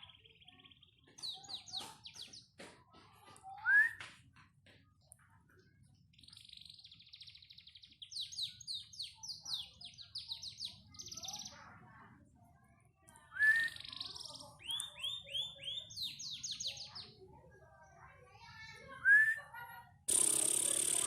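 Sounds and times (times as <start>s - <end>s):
canary singing trills and whistles: 6.2s - 11.6s, 13.3s - 17.2s, 20.1s - 21.0s.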